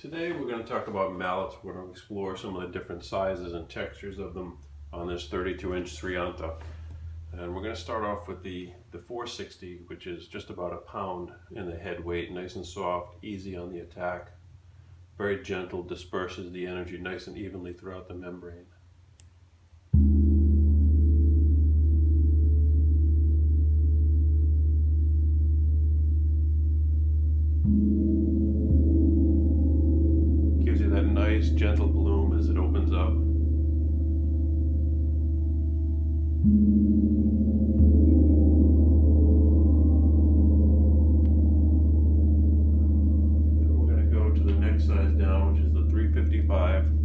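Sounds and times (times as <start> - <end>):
gong ringing: 27.6 - 47.0.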